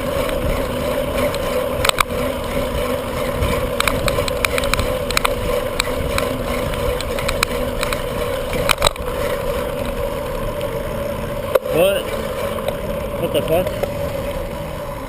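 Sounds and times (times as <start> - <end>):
sharp clatter: 0.0 - 10.6
wind on microphone: 0.0 - 11.5
bicycle drone: 0.0 - 15.0
light clicks and rattles: 0.1 - 10.8.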